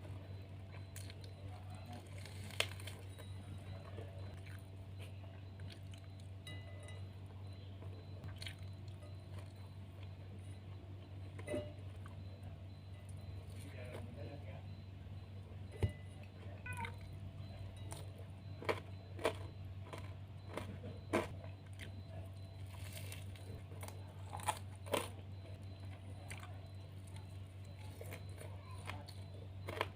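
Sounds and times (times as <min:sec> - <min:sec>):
crunchy chewing: 0:00.0 - 0:14.4, 0:15.7 - 0:29.9.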